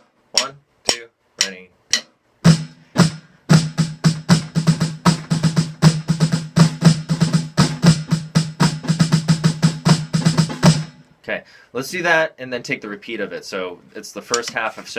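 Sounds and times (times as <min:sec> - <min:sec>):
snare drum playing flams: 0:02.5 - 0:10.9.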